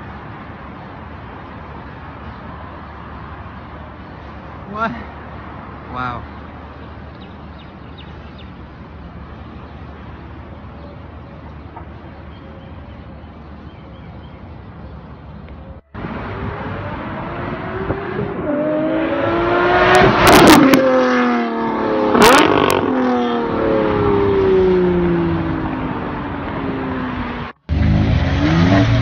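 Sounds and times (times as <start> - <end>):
street noise: 0.0 - 29.0
car engine accelerating: 15.9 - 29.0.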